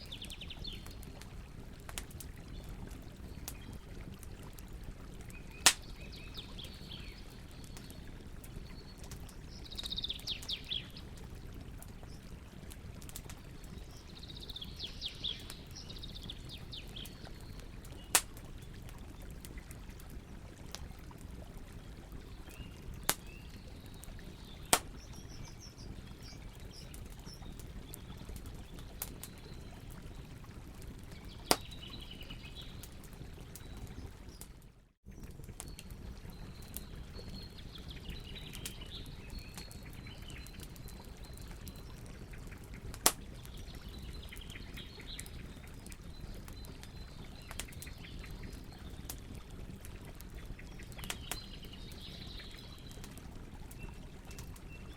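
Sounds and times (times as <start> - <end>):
campfire hissing and crackling: 0.0 - 54.9
burning wood popping: 0.2 - 15.6, 16.4 - 21.2, 22.4 - 23.4, 24.6 - 29.4, 31.2 - 32.6, 38.4 - 49.4
birds chirping: 8.6 - 11.1, 13.2 - 18.7.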